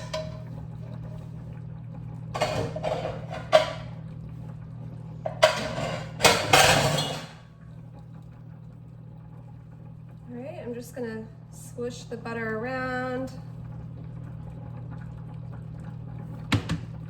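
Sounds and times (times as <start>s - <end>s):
steady low hum: 0.0s - 17.0s
utensil scraping glass dish: 2.4s - 3.8s.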